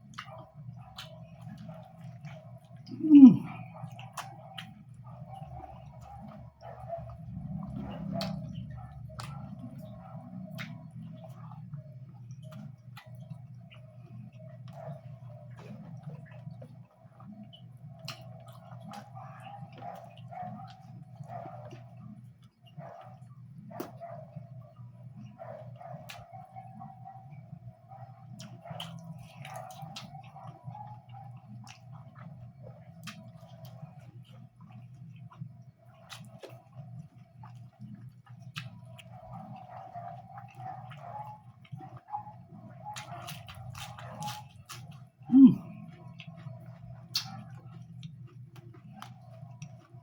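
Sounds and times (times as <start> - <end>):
person chewing: 0.0 - 6.4, 18.0 - 22.0, 28.4 - 32.4, 33.0 - 35.4, 36.0 - 42.0, 42.9 - 50.0.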